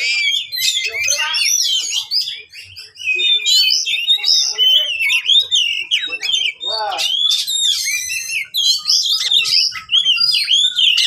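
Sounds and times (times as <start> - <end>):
bird singing whistles and chirps: 0.0 - 11.0.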